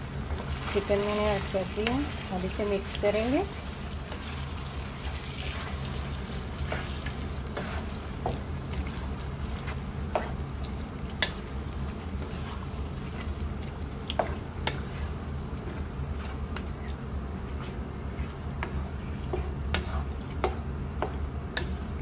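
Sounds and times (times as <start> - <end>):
chicken sizzling in oil: 0.0 - 22.0
spatula scraping and knocking pan: 5.0 - 10.4, 14.1 - 21.9.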